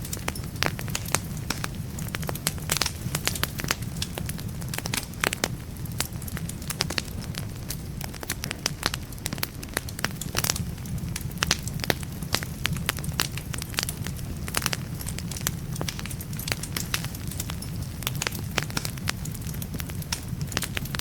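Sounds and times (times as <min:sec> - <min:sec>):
firewood crackling and popping: 0:00.0 - 0:21.0.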